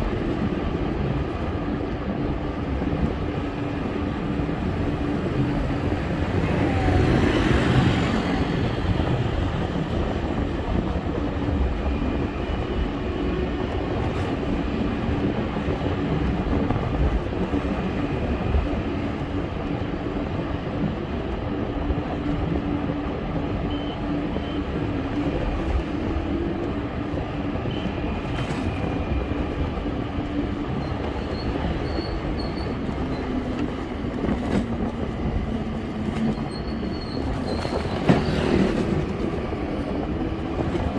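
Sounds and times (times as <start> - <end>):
bike ride rumbling: 28.2 - 40.9.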